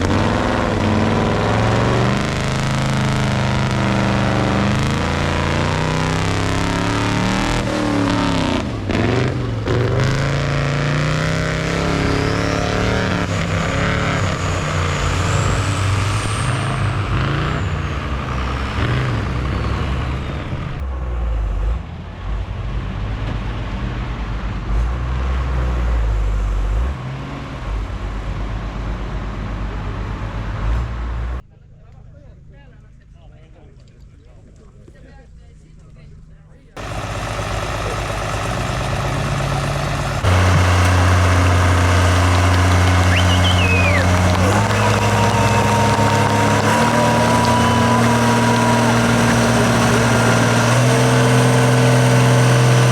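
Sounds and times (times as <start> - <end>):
truck engines revving: 0.0 - 31.4, 36.8 - 52.9
high whistle: 43.0 - 48.9.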